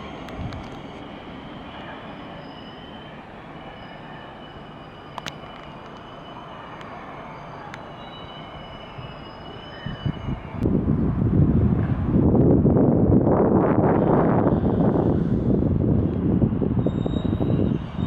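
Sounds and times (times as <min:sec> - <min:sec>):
train rolling on steel rails: 0:00.0 - 0:18.0
high-pitched wheel squeals: 0:01.4 - 0:10.6, 0:16.8 - 0:18.0.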